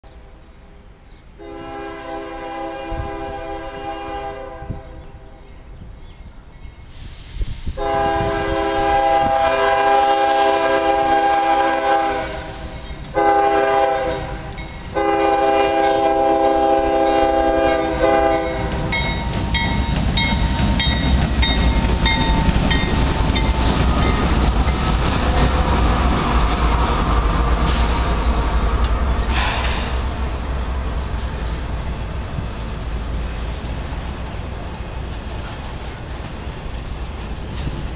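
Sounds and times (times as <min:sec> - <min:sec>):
train rumbling past on rails: 0:00.1 - 0:37.9
locomotive air horn blasts: 0:01.4 - 0:05.2, 0:07.8 - 0:18.7
wheels clickety-clack: 0:18.4 - 0:27.9.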